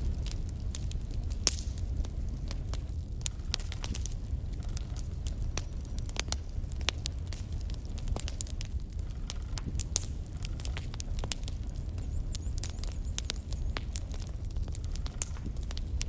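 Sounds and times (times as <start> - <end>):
logs crackling and popping: 0.0 - 16.0
low rumble of flames: 0.0 - 16.0.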